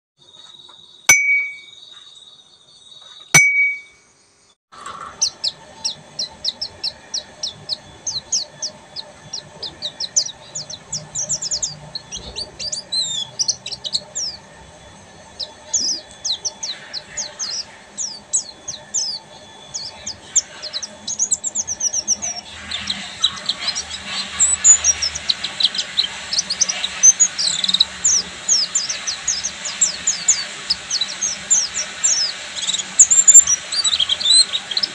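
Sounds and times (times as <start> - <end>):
bird twittering song: 0.4 - 3.9, 5.0 - 34.9
brief tone: 1.1 - 1.8, 3.1 - 4.1.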